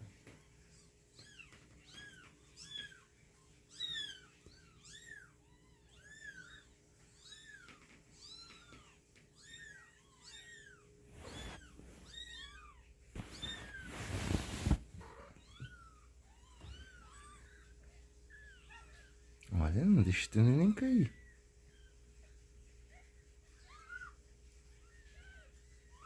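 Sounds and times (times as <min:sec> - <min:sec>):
brief rustling: 0:13.2 - 0:15.2.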